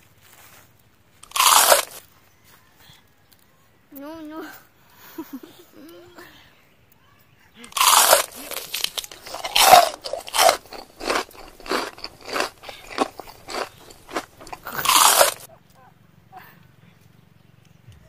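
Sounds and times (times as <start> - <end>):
crunchy bite into fruit: 1.2 - 2.1, 7.7 - 15.5
crunchy chewing: 1.2 - 2.2, 7.6 - 15.5.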